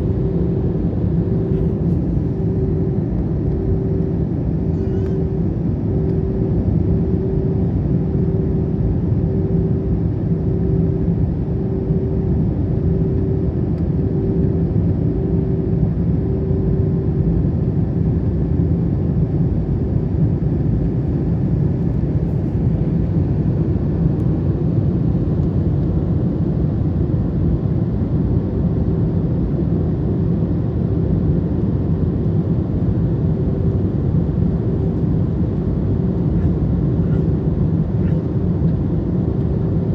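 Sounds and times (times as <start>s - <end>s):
thin throbbing hum tone: 0.0s - 18.0s
airliner engine and airflow hum: 0.0s - 39.9s.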